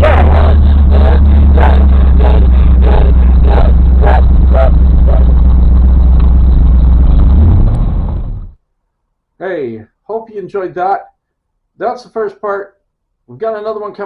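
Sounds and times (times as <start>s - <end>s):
vehicle engine rumbling: 0.0s - 8.6s.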